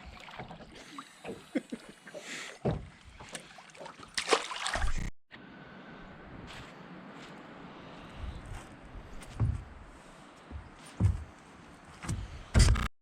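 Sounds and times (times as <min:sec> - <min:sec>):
knocks and clicks in a plastic kayak: 0:02.6 - 0:03.4.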